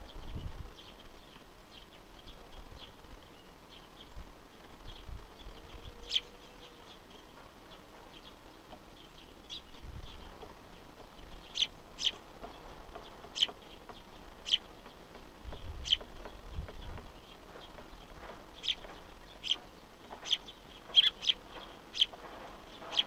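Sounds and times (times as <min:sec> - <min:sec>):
sharp high bird calls: 0:11.5 - 0:12.2, 0:15.8 - 0:16.1, 0:20.2 - 0:23.0.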